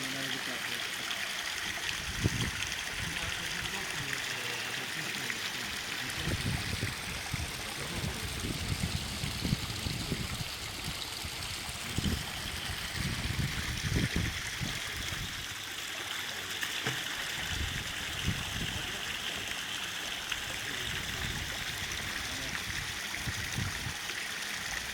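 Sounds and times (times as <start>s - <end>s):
waterfall trickling into pond: 0.0s - 24.9s.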